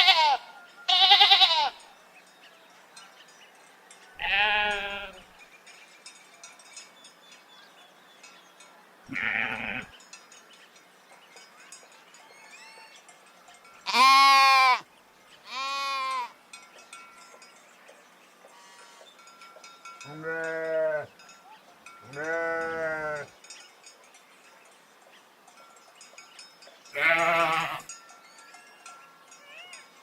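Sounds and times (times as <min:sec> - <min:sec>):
sheep bleating: 0:00.0 - 0:01.8, 0:04.2 - 0:05.2, 0:09.1 - 0:09.9, 0:13.9 - 0:14.8, 0:15.5 - 0:16.3, 0:20.1 - 0:21.1, 0:22.1 - 0:23.3, 0:27.0 - 0:27.9.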